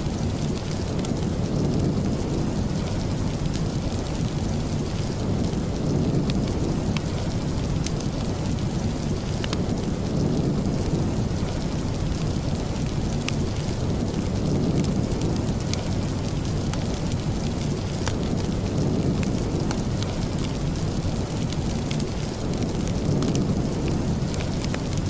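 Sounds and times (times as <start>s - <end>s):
steady rain: 0.0s - 25.0s.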